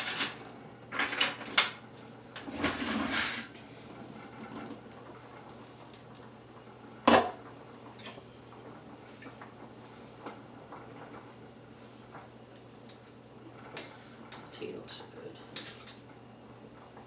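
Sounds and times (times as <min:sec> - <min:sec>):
utensils clattering: 0:00.0 - 0:00.4.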